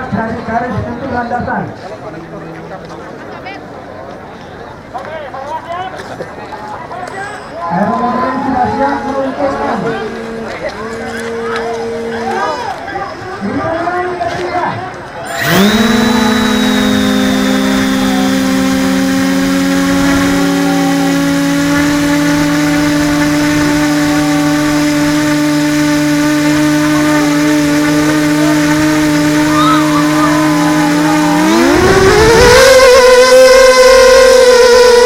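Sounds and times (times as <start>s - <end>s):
model airplane engine running: 8.6s - 12.8s, 15.3s - 35.0s.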